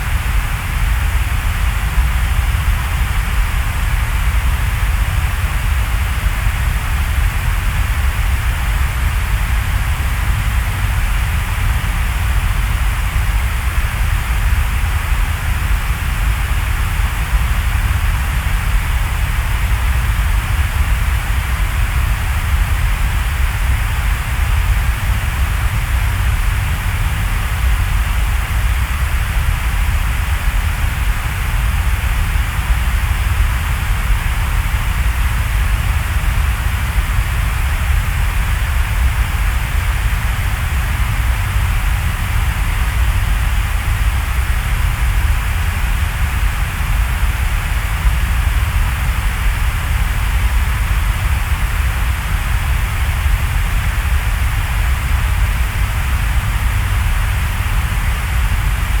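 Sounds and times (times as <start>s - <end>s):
dense rain in a forest: 0.0s - 59.0s.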